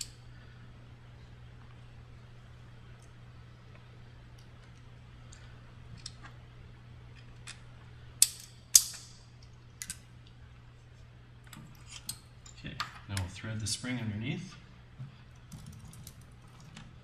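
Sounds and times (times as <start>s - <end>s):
metal parts clicking and clinking: 8.2s - 9.2s.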